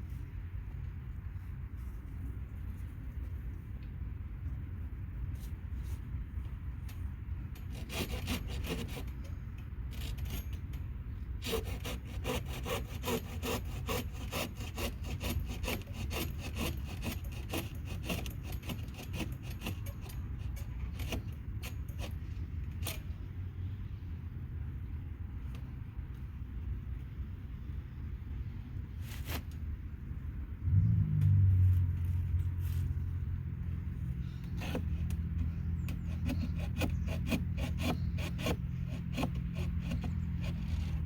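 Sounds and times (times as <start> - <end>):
hand saw cutting wood: 7.6 - 10.7, 11.4 - 23.1, 34.2 - 41.0.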